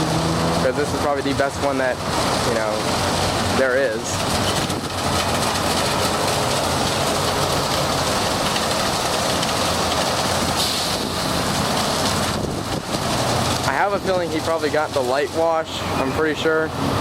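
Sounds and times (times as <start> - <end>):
water spraying over car: 0.0 - 17.0
bright hiss: 10.5 - 12.0.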